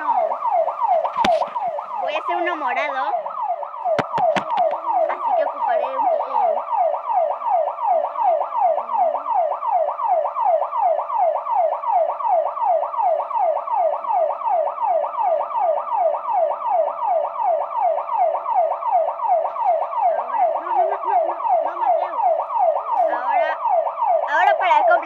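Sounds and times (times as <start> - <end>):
car alarm sweeping tone: 0.0 - 25.0.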